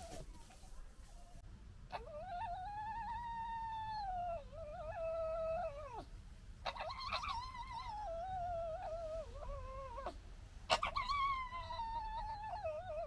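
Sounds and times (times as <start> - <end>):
fox whining: 6.7 - 13.0.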